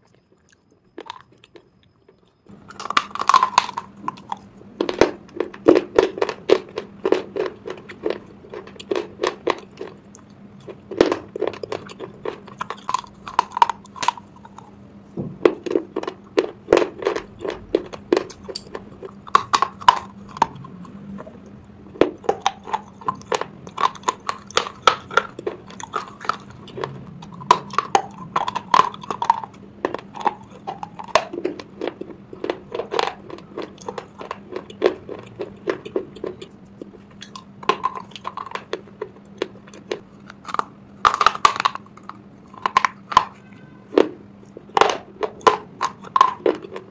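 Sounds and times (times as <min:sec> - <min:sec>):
crunching and chewing: 0:00.0 - 0:46.9.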